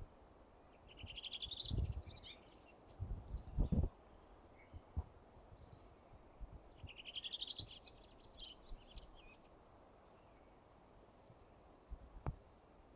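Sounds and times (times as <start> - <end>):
songbird singing: 0.6 - 12.9.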